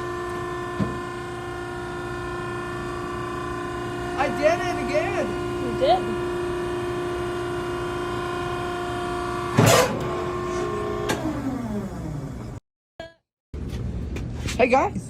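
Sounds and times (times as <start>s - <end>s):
hydraulic pump motor humming: 0.0s - 12.6s
loud clunk: 9.6s - 10.1s.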